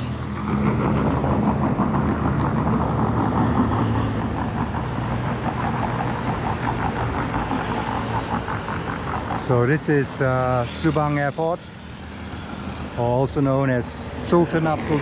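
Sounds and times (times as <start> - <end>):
road noise: 0.0 - 15.0
vehicle engine humming: 0.0 - 15.0.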